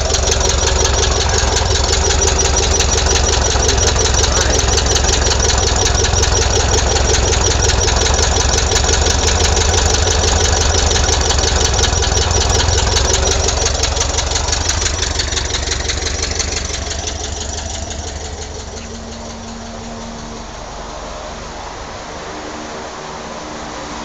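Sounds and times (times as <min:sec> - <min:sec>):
car engine idling: 0:00.0 - 0:23.9.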